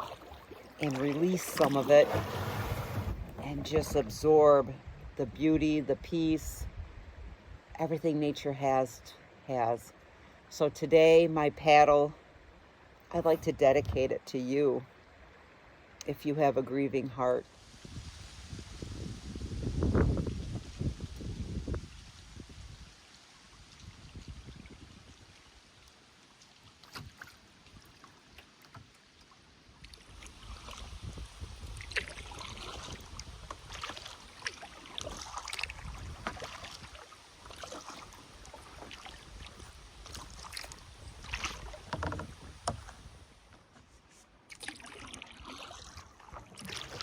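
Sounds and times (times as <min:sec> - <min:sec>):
water dripping off paddle: 0:00.0 - 0:04.1, 0:31.6 - 0:43.1, 0:44.5 - 0:47.0
paddle splashing in water: 0:00.0 - 0:05.9, 0:17.2 - 0:47.0.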